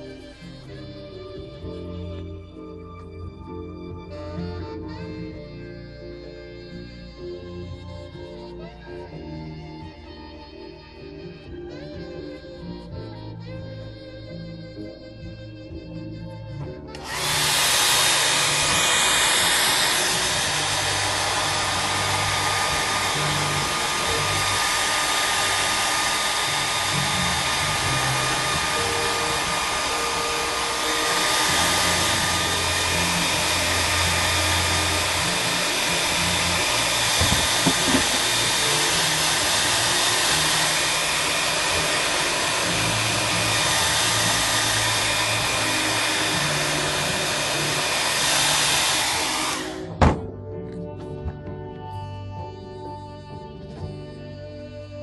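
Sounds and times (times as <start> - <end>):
electric blower rushing air: 0.0 - 3.1, 16.9 - 50.3.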